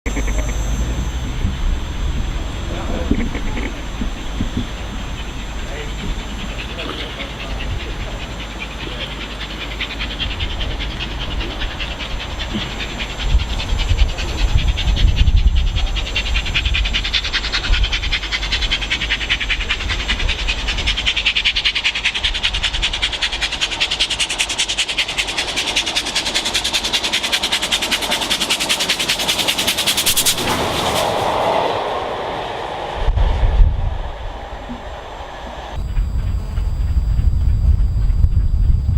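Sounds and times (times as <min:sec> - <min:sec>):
steam locomotive rhythmic beat: 0:03.1 - 0:30.4.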